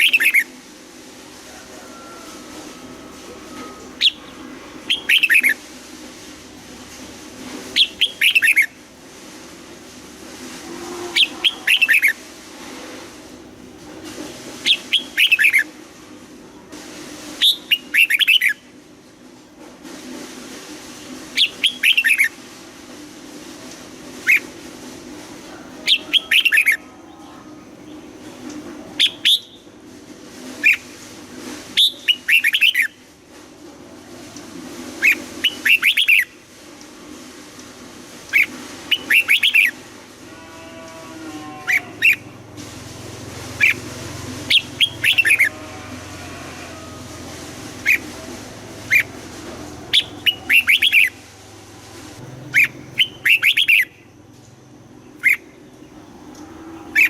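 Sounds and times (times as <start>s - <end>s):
bird singing whistled phrases: 50.0s - 51.2s, 52.6s - 53.9s.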